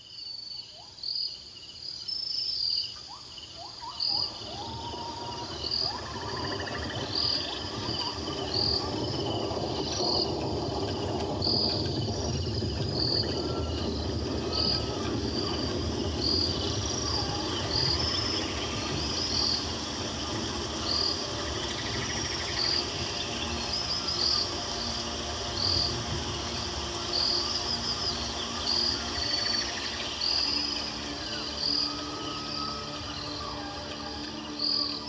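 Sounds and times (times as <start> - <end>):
insects and frogs chirping: 0.0 - 35.0
steady low rumble: 4.4 - 32.2.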